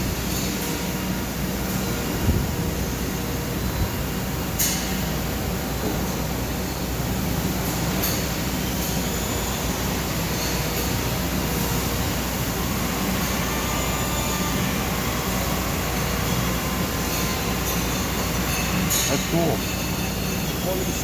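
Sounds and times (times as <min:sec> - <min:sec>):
lathe running: 0:11.0 - 0:21.0.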